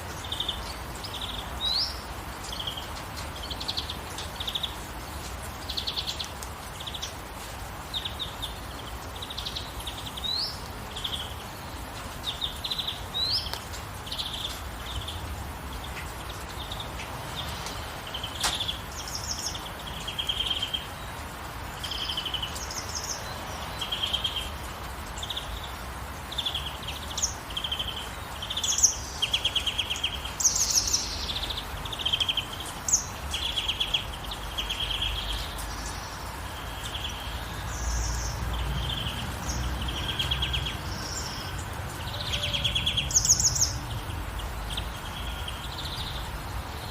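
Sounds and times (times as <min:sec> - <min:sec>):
gentle rainfall hiss: 0:00.0 - 0:46.9
songbirds chirping and trilling: 0:00.0 - 0:46.9.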